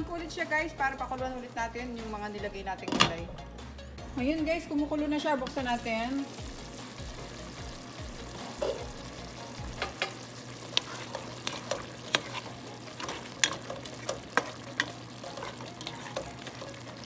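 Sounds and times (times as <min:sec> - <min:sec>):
sauce boiling and sizzling: 0:04.3 - 0:17.0
sharp stirring clicks: 0:09.8 - 0:16.7.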